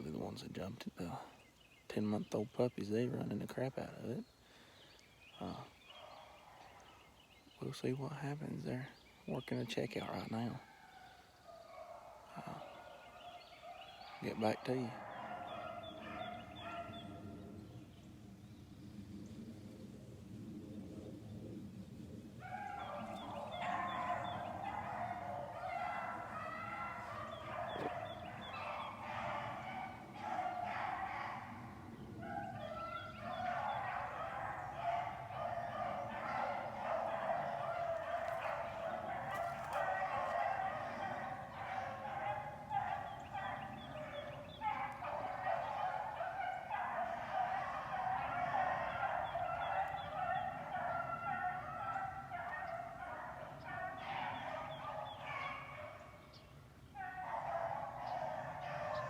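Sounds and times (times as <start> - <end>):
dogs baying: 9.9 - 17.9, 22.4 - 59.0.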